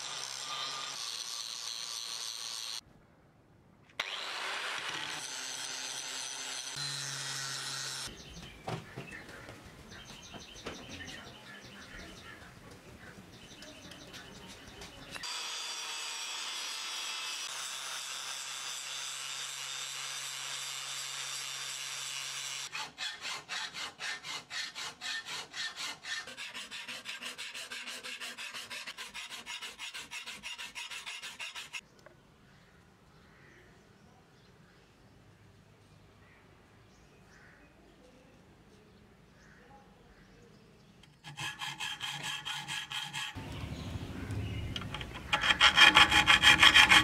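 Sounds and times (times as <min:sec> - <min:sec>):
file rasping on steel blade: 0:18.4 - 0:31.8, 0:41.2 - 0:43.5, 0:44.9 - 0:47.0.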